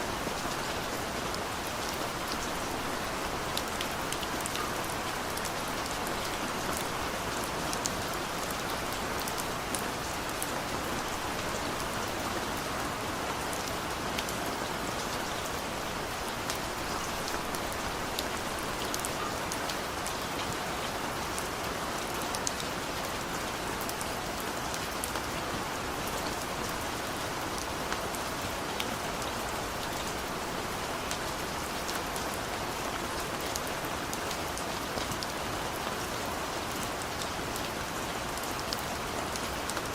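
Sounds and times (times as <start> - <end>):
rain drops pattering: 0.0 - 39.9.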